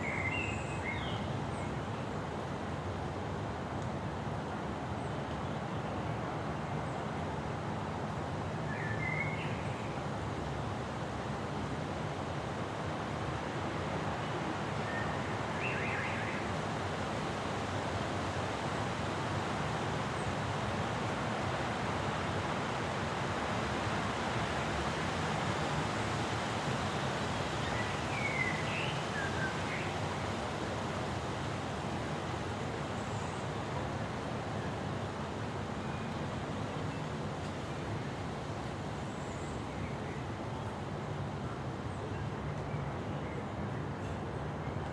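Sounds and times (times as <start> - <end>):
wind: 0.0 - 44.9.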